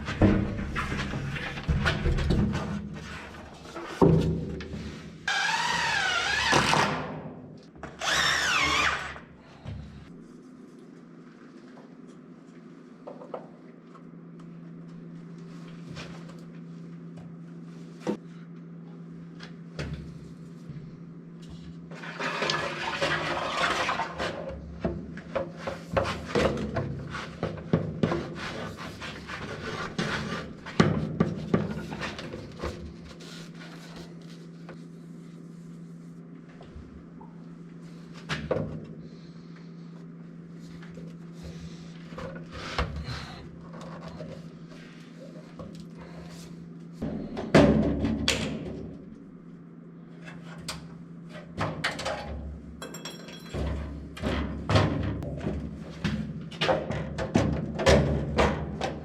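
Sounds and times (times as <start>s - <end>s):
steady low hum: 24.3s - 56.6s.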